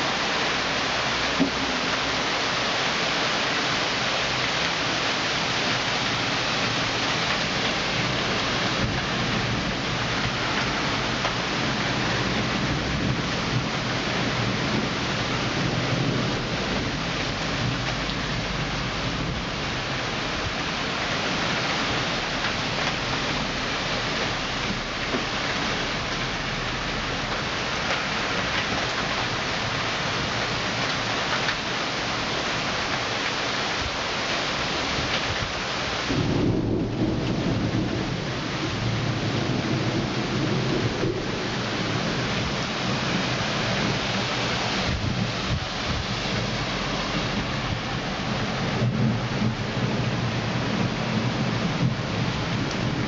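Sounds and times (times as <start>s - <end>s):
heavy rain downpour: 0.0s - 53.0s
low thunder rumble: 6.1s - 30.8s, 34.9s - 53.0s.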